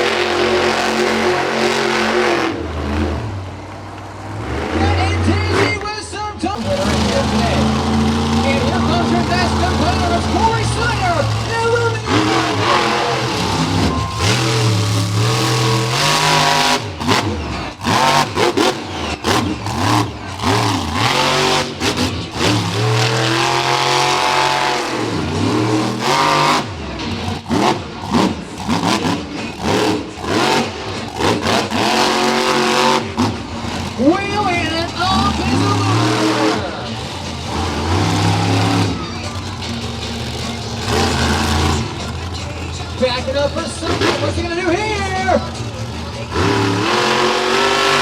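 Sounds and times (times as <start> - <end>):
monster truck engine revving: 0.0 - 48.0.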